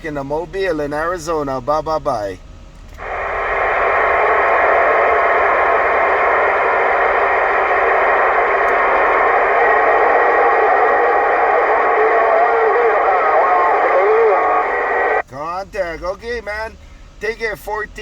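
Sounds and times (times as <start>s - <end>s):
faint distant radio voice: 3.0s - 15.2s
radio static hiss: 3.0s - 15.2s.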